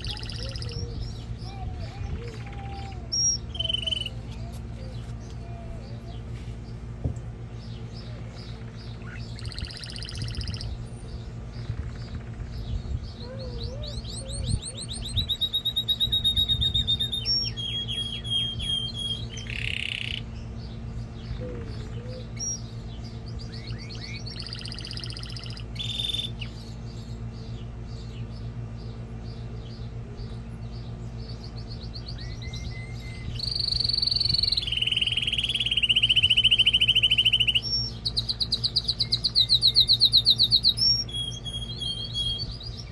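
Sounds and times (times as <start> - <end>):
canary singing trills: 0.0 - 42.9
steady low hum: 0.0 - 42.9.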